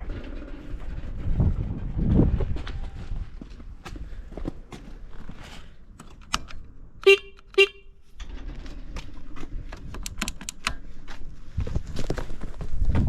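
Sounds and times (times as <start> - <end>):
clicks and handling noise: 5.2 - 12.4
motorcycle horn blasts: 7.0 - 8.0.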